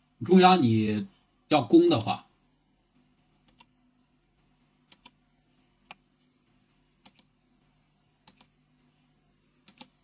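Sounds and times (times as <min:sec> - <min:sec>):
computer mouse clicks: 0:03.4 - 0:03.8, 0:04.8 - 0:05.2, 0:05.8 - 0:06.1, 0:07.0 - 0:07.3, 0:08.2 - 0:08.6, 0:09.6 - 0:10.0.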